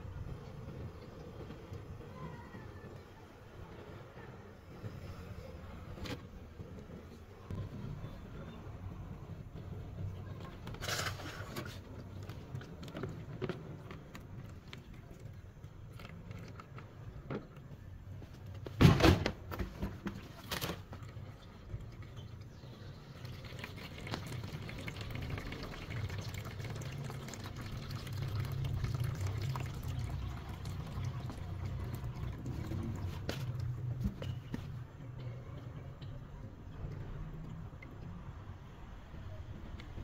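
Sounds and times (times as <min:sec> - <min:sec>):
water trickling into basin: 0:21.3 - 0:34.0.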